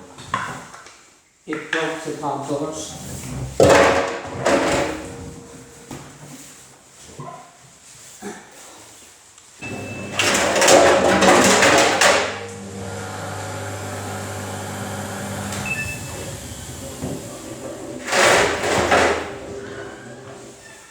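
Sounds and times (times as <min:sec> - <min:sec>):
washing machine clattering: 0:03.5 - 0:06.0, 0:09.6 - 0:20.8
washing machine motor hum: 0:03.6 - 0:06.0, 0:09.6 - 0:20.9.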